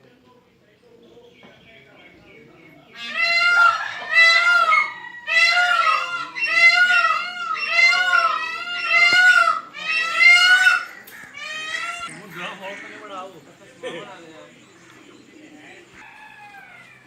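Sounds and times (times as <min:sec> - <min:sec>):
bird wailing calls: 0:02.9 - 0:13.2.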